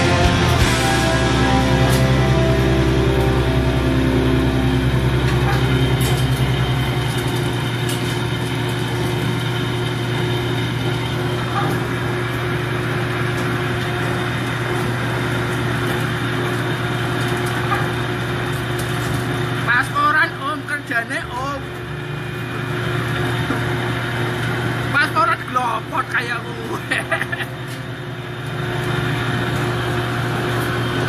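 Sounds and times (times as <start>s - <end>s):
ship engine humming: 0.0s - 8.7s.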